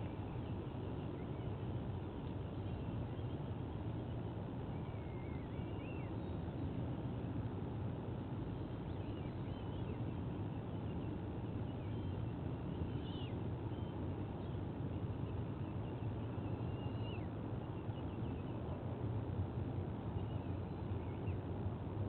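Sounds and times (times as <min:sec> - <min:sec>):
low background rumble: 0:00.0 - 0:22.0
faint high bird chirps: 0:04.6 - 0:06.4, 0:10.9 - 0:14.6, 0:15.2 - 0:18.8.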